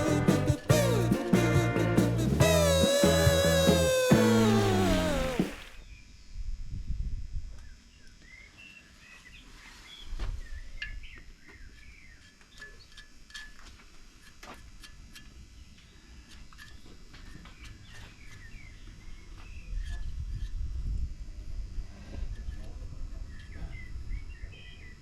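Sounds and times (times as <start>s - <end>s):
low wind-like rumble: 6.3s - 7.8s, 19.6s - 24.4s
small birds chirping: 15.8s - 20.0s.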